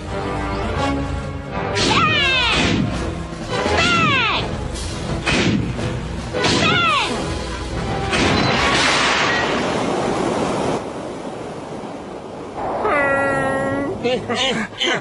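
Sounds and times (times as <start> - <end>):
background music: 0.0 - 9.8.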